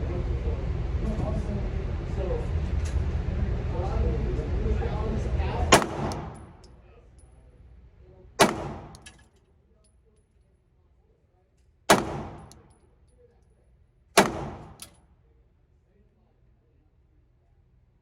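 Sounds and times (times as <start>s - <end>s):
pistol shots with echo: 5.7s - 6.6s, 8.4s - 9.2s, 11.9s - 12.7s, 14.2s - 15.0s.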